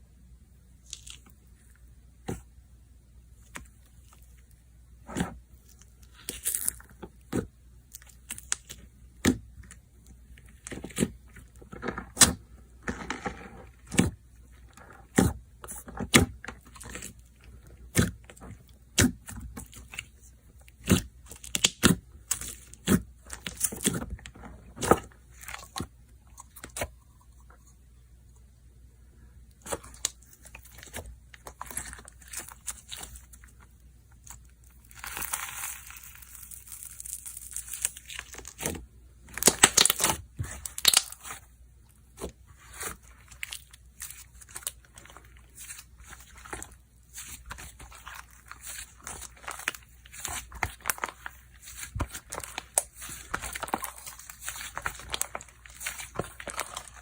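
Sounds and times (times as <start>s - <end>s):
slime squished by hand: 34.2s - 41.5s, 42.1s - 57.0s.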